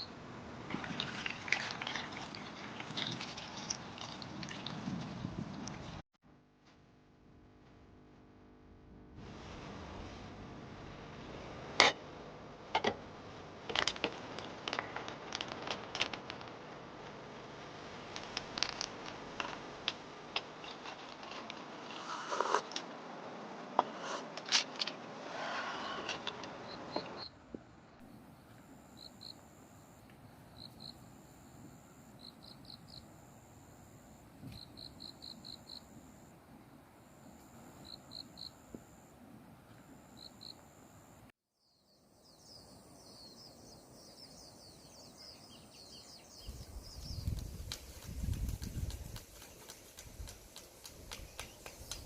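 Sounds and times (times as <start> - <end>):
insects chirping and trilling: 28.0 - 52.0.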